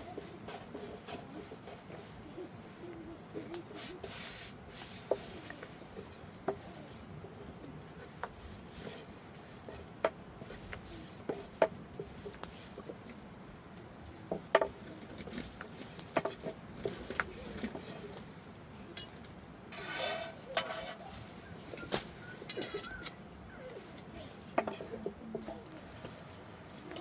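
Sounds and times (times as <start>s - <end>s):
rough rasping sound: 19.7s - 21.1s.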